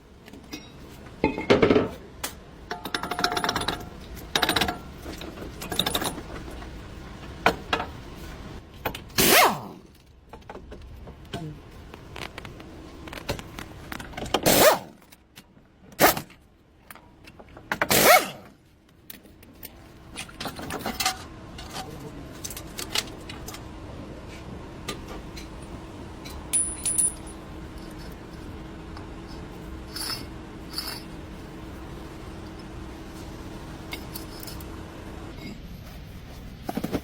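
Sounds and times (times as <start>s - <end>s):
faint steady hum: 0.0s - 37.0s
metal clinks and clatter: 26.4s - 28.2s.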